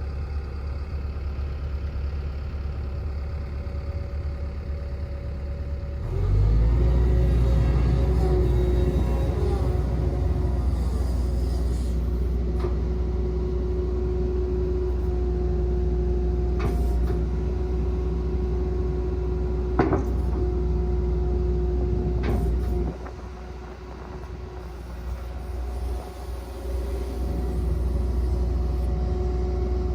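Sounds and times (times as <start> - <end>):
excavator diesel rumble: 0.0 - 29.9
steady machine whine: 5.2 - 15.0
short clunks: 22.1 - 23.2.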